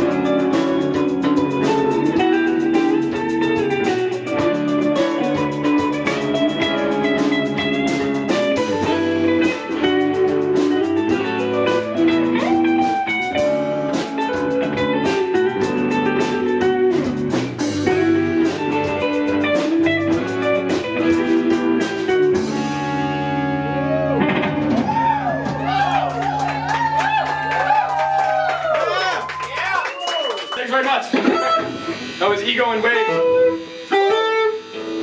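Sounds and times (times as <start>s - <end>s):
electric guitar: 0.0s - 29.5s, 31.1s - 35.0s
bass guitar: 0.0s - 30.1s, 31.1s - 35.0s
drum kit beat: 0.0s - 35.0s.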